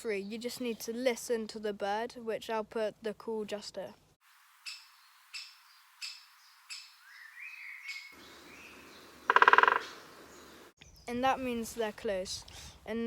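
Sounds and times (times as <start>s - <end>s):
woodpecker calling: 4.6s - 11.0s
woodpecker rapid pulse burst: 9.3s - 9.9s.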